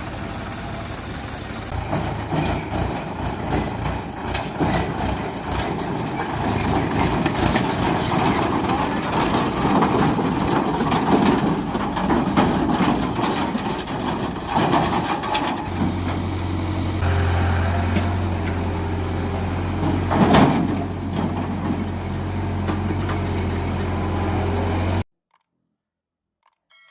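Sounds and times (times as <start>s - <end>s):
diesel machinery engine: 0.0s - 25.0s
machinery clanks and knocks: 1.6s - 17.1s, 19.6s - 24.0s.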